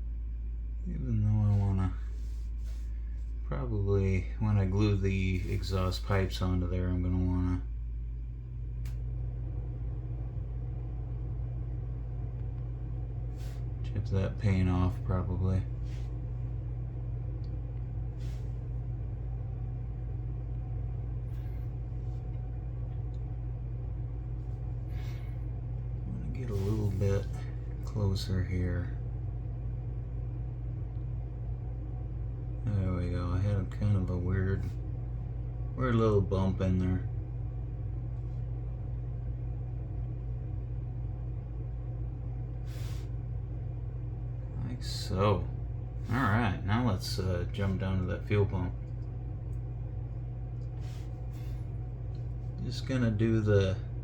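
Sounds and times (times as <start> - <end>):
steady low hum: 0.0 - 54.0
faint soft sounds: 0.8 - 10.2.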